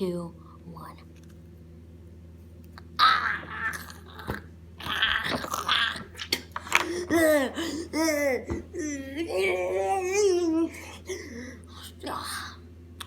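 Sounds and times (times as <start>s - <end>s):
vocal noises: 3.0s - 12.6s.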